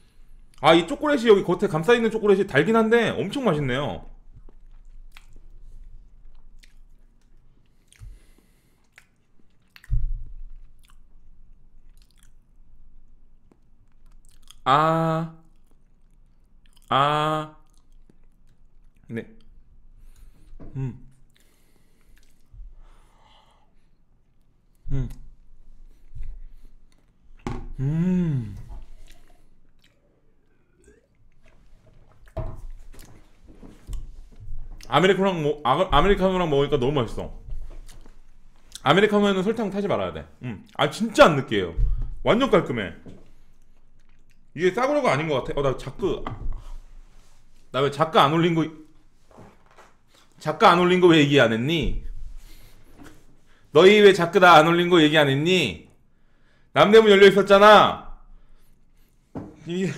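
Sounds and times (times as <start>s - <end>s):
person chewing cake: 4.2s - 14.6s, 15.4s - 16.9s, 17.6s - 20.5s, 21.1s - 23.0s, 23.8s - 34.9s, 37.7s - 38.9s, 43.4s - 44.6s
man humming mmm: 20.6s - 21.2s, 24.8s - 25.4s, 27.7s - 28.9s.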